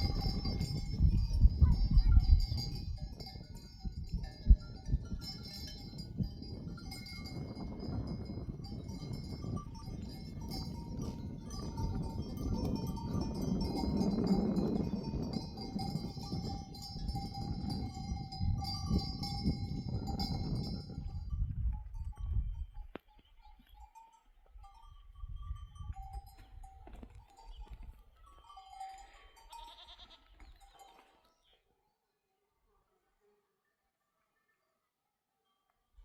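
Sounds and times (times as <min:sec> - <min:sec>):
animal bells clanking: 0:00.0 - 0:31.6.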